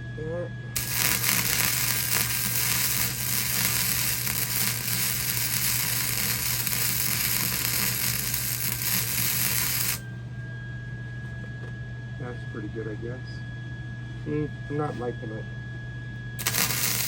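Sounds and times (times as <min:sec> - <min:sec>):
welding arc crackling: 0:00.8 - 0:10.0, 0:16.4 - 0:17.0.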